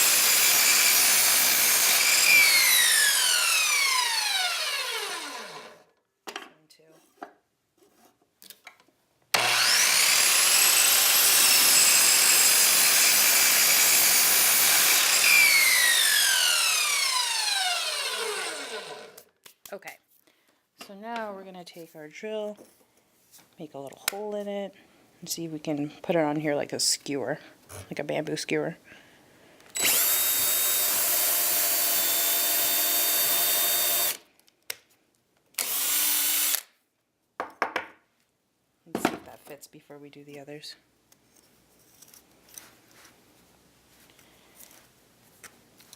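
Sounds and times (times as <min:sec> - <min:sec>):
electric drill boring wood: 0:00.0 - 0:05.9, 0:09.4 - 0:19.3, 0:29.8 - 0:34.2, 0:35.6 - 0:36.7
electric power saw cutting wood: 0:00.0 - 0:05.9, 0:09.3 - 0:19.3, 0:29.8 - 0:34.2, 0:35.6 - 0:36.6.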